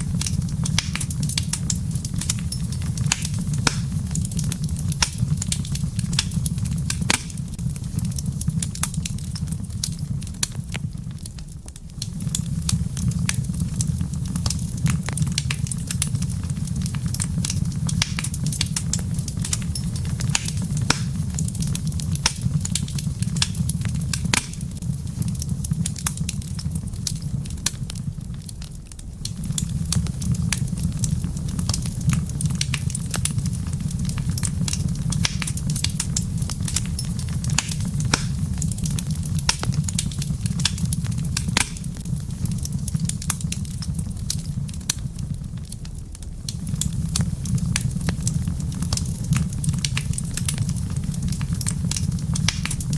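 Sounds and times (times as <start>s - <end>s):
wood fire crackling and popping: 0.0s - 52.9s.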